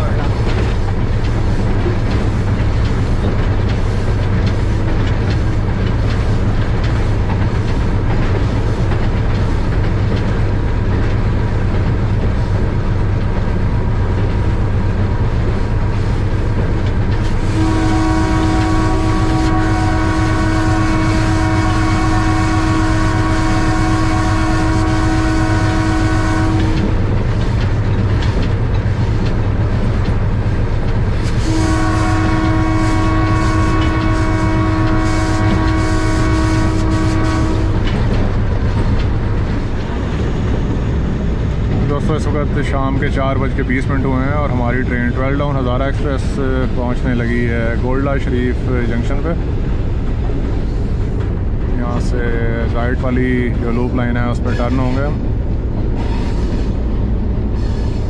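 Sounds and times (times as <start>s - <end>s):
train running rumble: 0.0s - 58.0s
locomotive horn blast: 17.4s - 26.9s, 31.2s - 38.0s.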